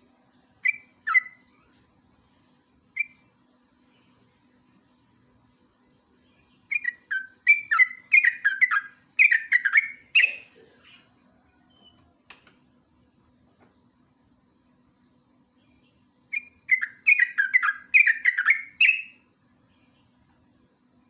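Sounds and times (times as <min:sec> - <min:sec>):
faint steady hum: 0:00.0 - 0:21.0
bird singing bubbly notes: 0:00.6 - 0:01.5, 0:06.7 - 0:10.5, 0:16.3 - 0:19.2.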